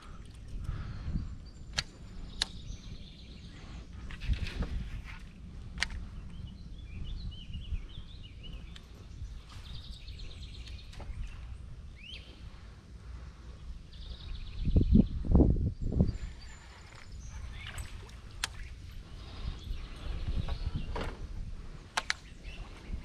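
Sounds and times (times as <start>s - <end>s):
birds chirping: 0.0s - 23.0s
steady low rumble: 0.0s - 23.0s
sharp clicks: 1.7s - 2.6s, 5.8s - 6.1s, 21.9s - 22.3s.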